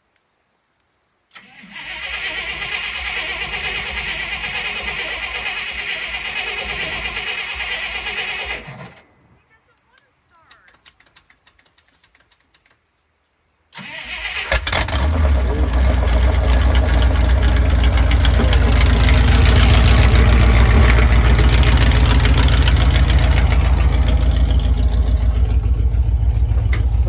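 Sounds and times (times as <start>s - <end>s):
engine cranking and starting: 1.3s - 9.1s, 13.7s - 27.0s
engine running with steady pulse: 2.2s - 9.1s, 14.5s - 27.0s.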